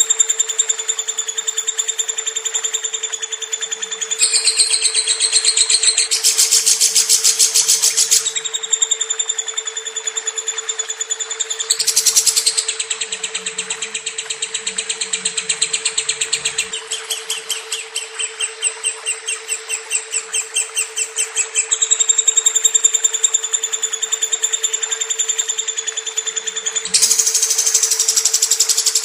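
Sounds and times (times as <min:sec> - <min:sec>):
lovebird chattering trill: 0:03.4 - 0:08.6, 0:11.5 - 0:23.0, 0:26.2 - 0:29.0.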